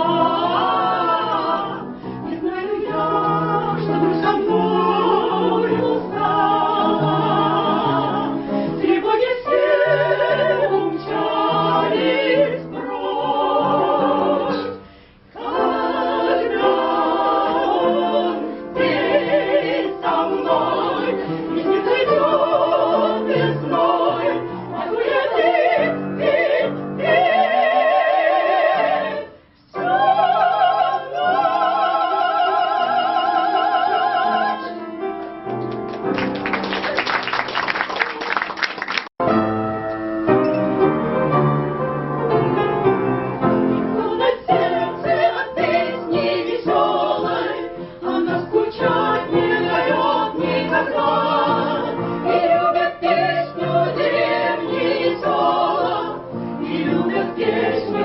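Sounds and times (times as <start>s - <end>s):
operatic singing with vibrato: 0.0s - 34.8s, 43.9s - 58.0s.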